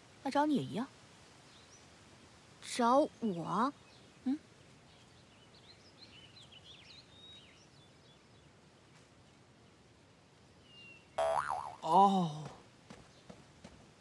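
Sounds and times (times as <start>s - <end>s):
faint birds chirping: 0.0s - 14.0s
vocal exclamation: 11.2s - 12.4s.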